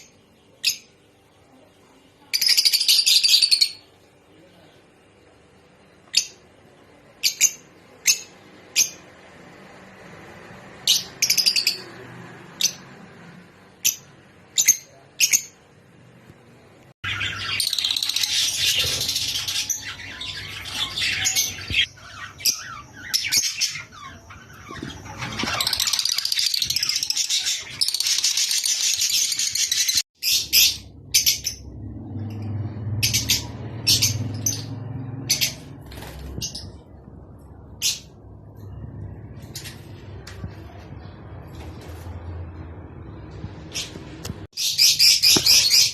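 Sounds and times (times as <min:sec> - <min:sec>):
lovebirds chirping: 0:17.0 - 0:45.9.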